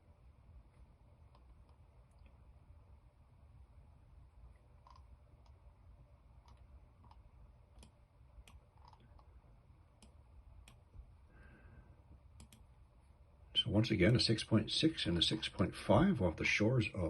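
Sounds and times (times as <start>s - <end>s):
low hum: 0.0s - 17.0s
computer mouse clicks: 0.8s - 2.4s, 4.6s - 5.6s, 6.4s - 10.9s, 12.3s - 12.7s.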